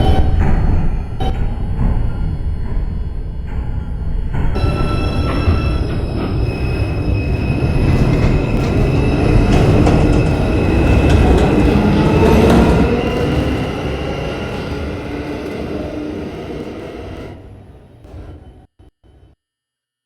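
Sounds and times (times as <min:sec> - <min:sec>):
subway train wheels squealing: 0:00.0 - 0:18.6
train rumble: 0:00.0 - 0:18.6.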